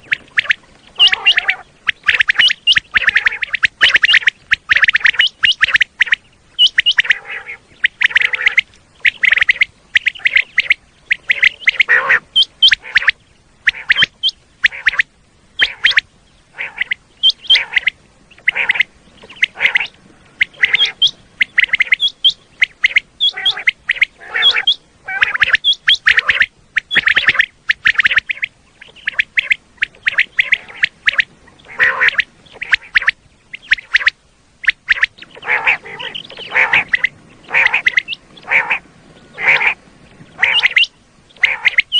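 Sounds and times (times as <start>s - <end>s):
quail calling: 0.0s - 41.9s.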